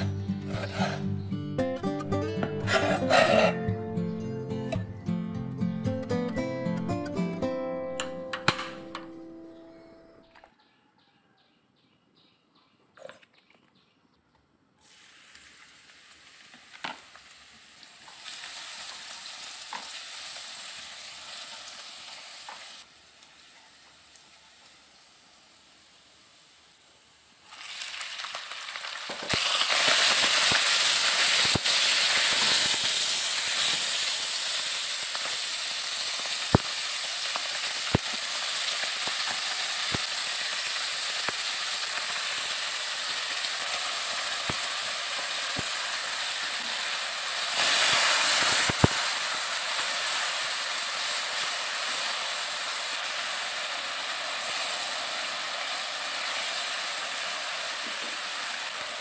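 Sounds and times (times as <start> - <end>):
meat sizzling in hot oil: 14.8 - 59.0.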